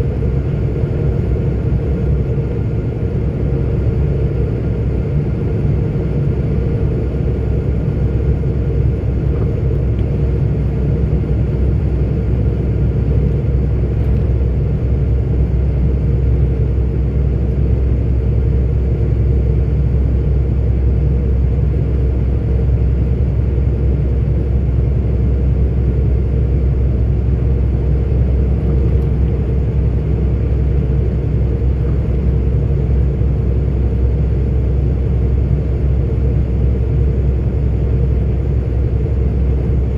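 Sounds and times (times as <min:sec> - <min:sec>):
lorry engine and road rumble: 0:00.0 - 0:39.9.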